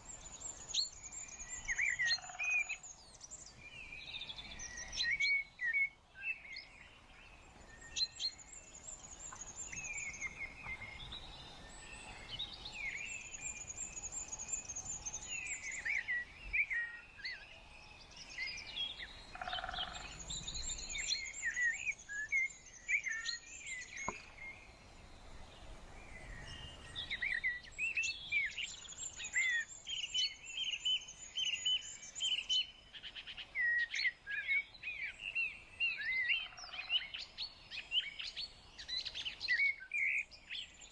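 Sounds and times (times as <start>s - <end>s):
birds singing and chirping: 7.8s - 40.9s.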